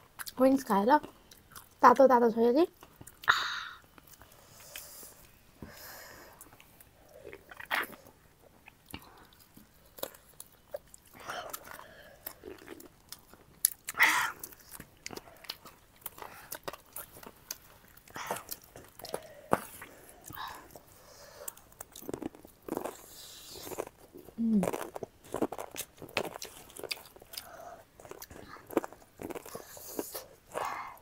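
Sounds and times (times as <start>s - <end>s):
chewing and biting food: 1.0s - 1.8s, 6.4s - 31.0s
food crunching: 6.4s - 31.0s.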